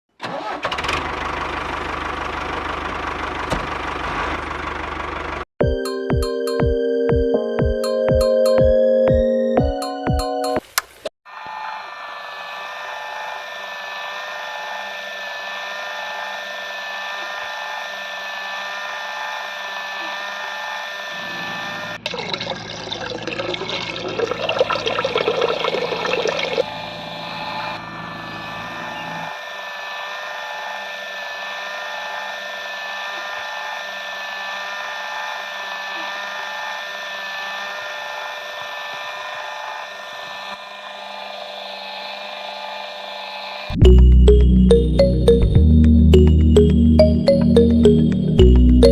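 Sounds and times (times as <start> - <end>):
small electric motor whine: 11.3 - 22.0, 26.6 - 43.8.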